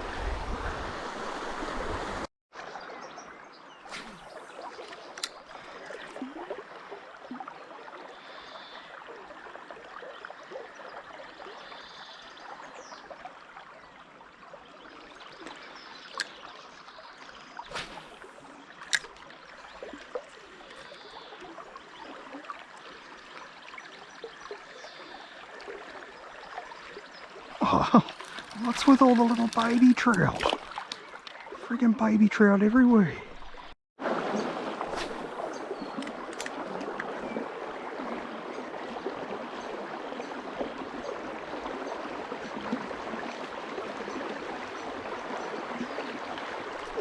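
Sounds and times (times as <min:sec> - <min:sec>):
river water over rocks: 0:00.0 - 0:31.7, 0:33.3 - 0:47.0.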